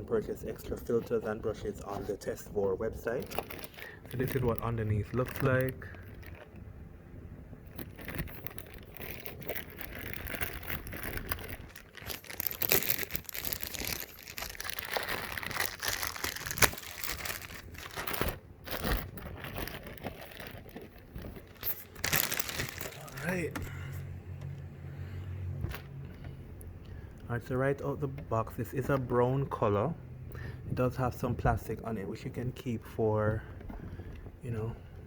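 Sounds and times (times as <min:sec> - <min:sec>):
plastic packaging crinkling: 0:00.4 - 0:06.8, 0:07.6 - 0:23.7.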